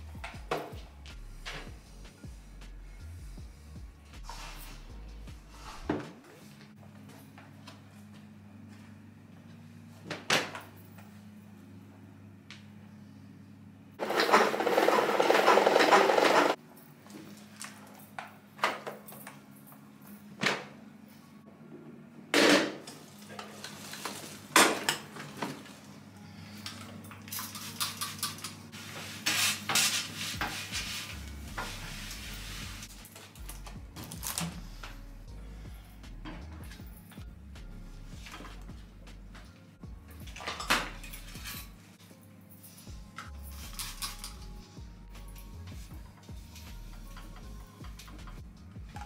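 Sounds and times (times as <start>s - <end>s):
dishes and cutlery clinking: 40.2s - 41.8s.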